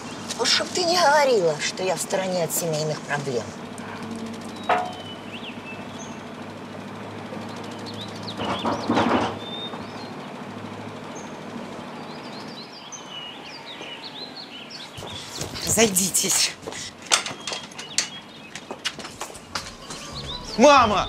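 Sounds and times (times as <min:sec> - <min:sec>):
steady low hum: 0:00.0 - 0:12.7, 0:17.9 - 0:21.0
birds chirping: 0:00.0 - 0:21.0.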